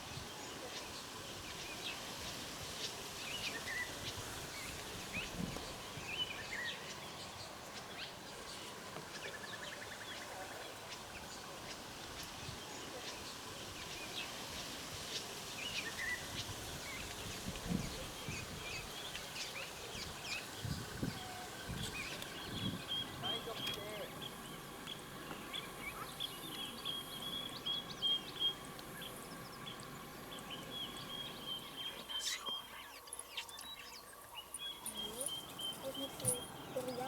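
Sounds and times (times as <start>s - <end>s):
steady background hiss: 0.0s - 37.0s
birds chirping and whistling: 30.3s - 37.0s
bird trill: 30.8s - 37.0s.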